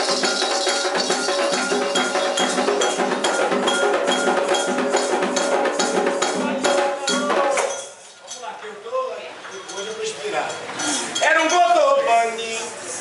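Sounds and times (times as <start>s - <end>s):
hand drums: 0.0s - 8.1s
metal bell rhythm: 0.0s - 8.5s, 9.5s - 12.2s.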